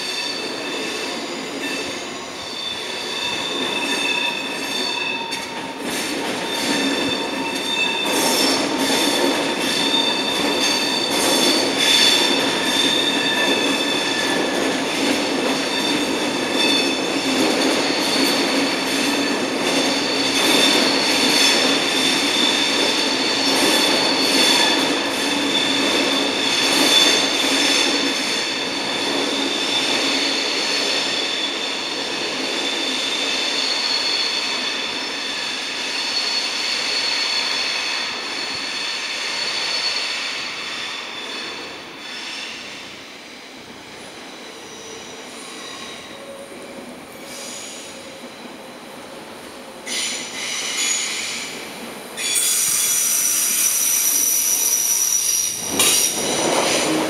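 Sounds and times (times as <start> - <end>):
rumble of train wheels: 0.0 - 57.0
train wheel squeal: 0.0 - 57.0.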